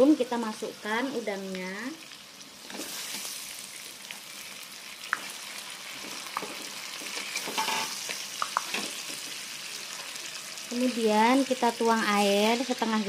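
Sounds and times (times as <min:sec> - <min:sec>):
prawns sizzling in hot oil: 0:00.0 - 0:13.0
metal spatula scraping a pan: 0:07.2 - 0:08.0.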